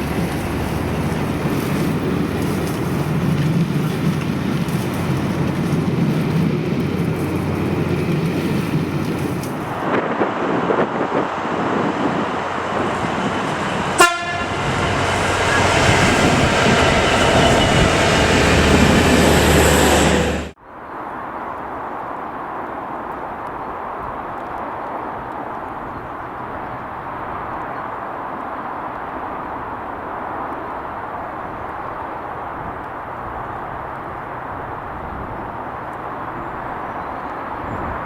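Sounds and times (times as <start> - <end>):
train wheels rumbling on rail: 0.0 - 20.6.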